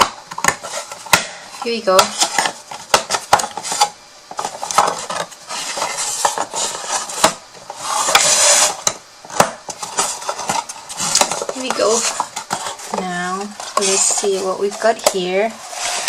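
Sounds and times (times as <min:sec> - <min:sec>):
rustle of craft pieces: 0:00.5 - 0:08.9, 0:09.7 - 0:16.0.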